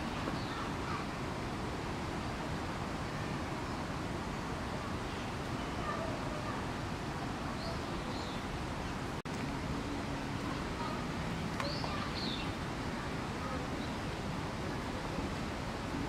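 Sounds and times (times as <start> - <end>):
faint distant voices: 0.0 - 16.0
outdoor background hiss: 0.0 - 16.0
faint high bird chirps: 11.6 - 12.6.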